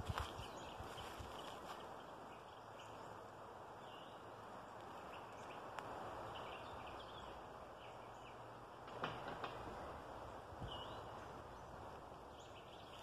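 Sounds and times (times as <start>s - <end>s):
steady low hiss: 0.0s - 13.0s
bird chirps: 5.0s - 8.5s, 10.6s - 13.0s.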